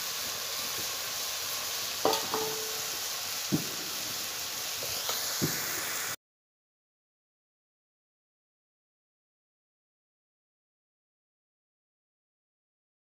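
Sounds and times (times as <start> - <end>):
mushrooms sizzling in oil: 0.0 - 6.2.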